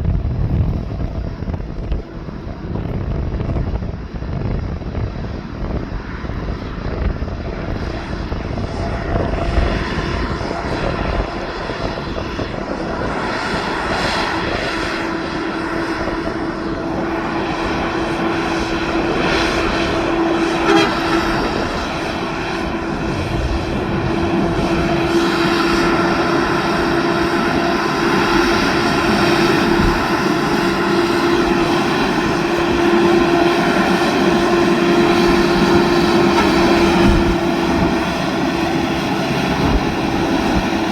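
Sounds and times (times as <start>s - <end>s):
truck diesel engine droning: 0.0s - 40.9s.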